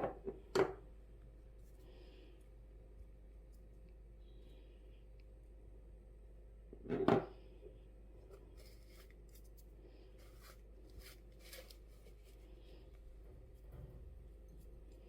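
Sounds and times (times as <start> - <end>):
kitchen scrape: 10.2 - 12.4.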